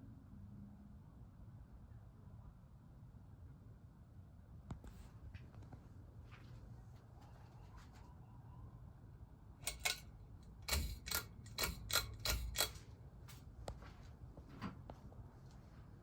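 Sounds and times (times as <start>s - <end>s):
faint low hum: 0.0s - 16.0s
sharp mechanical clicks: 9.6s - 12.8s.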